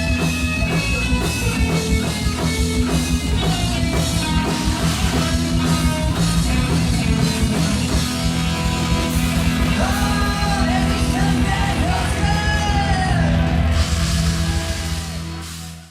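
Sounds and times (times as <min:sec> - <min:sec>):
fast dense drumming: 0:00.0 - 0:15.6
rock band playing live: 0:00.0 - 0:15.9
person singing: 0:09.5 - 0:15.9.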